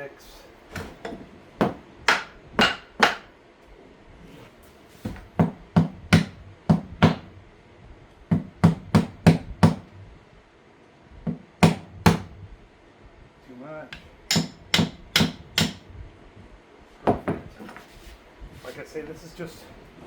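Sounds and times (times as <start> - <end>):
hammer striking wood: 1.1 - 3.3, 5.1 - 7.3, 8.3 - 10.0, 11.3 - 12.4, 14.0 - 15.8.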